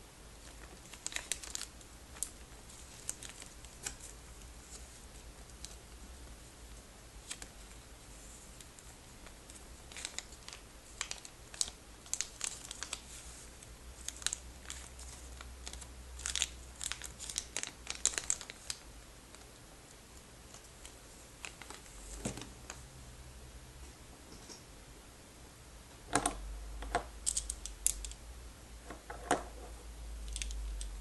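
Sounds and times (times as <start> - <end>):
plastic bag crinkling: 0.4 - 5.9, 9.5 - 13.4, 14.0 - 19.4.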